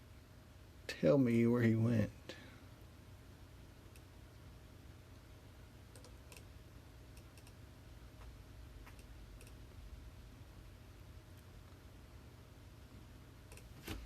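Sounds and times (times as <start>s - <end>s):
computer mouse clicks: 5.9s - 6.5s, 7.1s - 7.6s, 8.2s - 9.6s, 13.5s - 13.8s.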